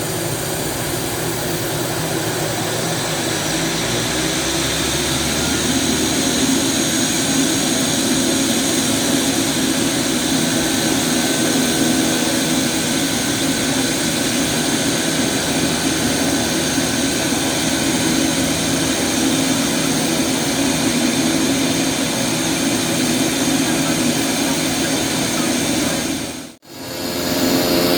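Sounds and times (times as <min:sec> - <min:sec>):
propeller noise: 0:00.0 - 0:27.9
turbine whine: 0:00.0 - 0:27.9.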